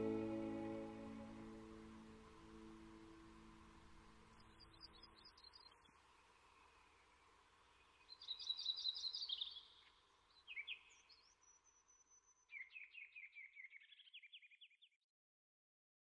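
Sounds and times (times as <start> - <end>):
songbird singing: 4.3 - 15.0.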